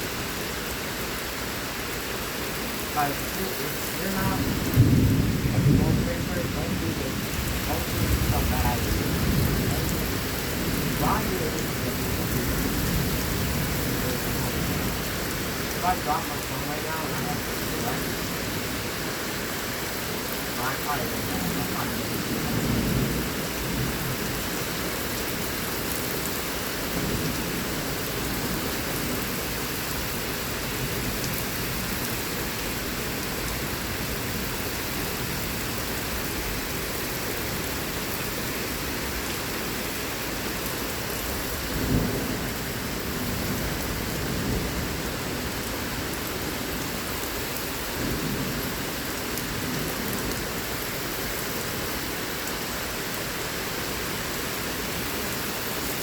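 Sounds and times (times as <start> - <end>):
heavy rain falling: 0.0 - 56.0
thunder rumbling: 3.0 - 19.1, 20.1 - 24.4.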